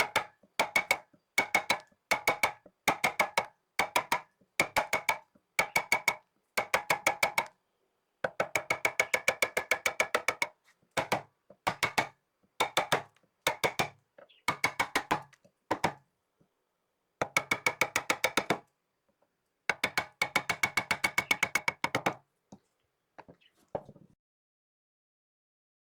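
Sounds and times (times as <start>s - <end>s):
rapid hollow wooden knocking: 0.0s - 7.5s, 8.3s - 16.0s, 17.2s - 18.6s, 19.7s - 22.2s.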